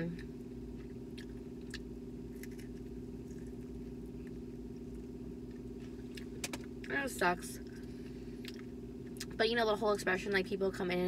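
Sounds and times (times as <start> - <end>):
steady low hum: 0.0 - 11.0
person chewing fried fish: 0.6 - 6.9, 7.6 - 9.4.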